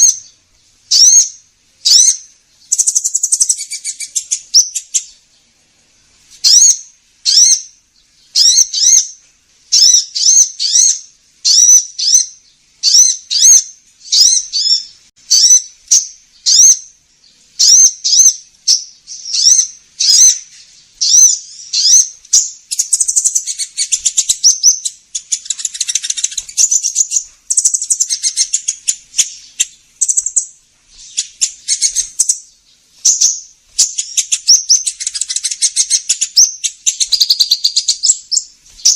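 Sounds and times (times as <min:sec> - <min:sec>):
sunbird chirps and trills: 0:00.0 - 0:38.9.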